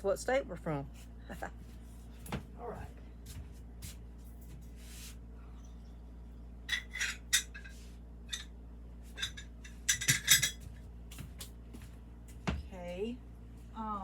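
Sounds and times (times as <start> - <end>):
ceramic pieces clinking: 6.7 - 7.7, 9.2 - 10.6.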